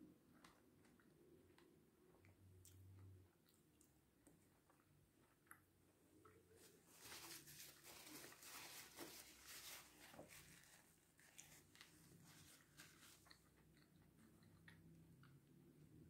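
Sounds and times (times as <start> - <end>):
person chewing: 11.2 - 15.6.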